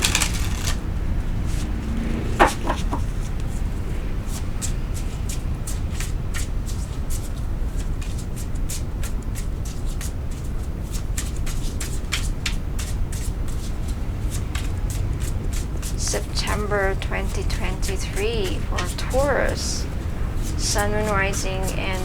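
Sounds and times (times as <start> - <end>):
cards being shuffled: 0.0 - 0.8.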